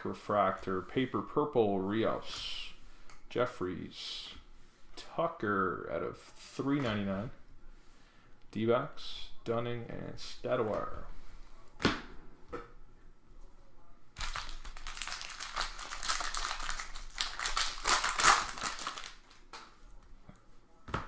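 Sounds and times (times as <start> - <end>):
wrapper tearing and crinkling: 14.2 - 19.6.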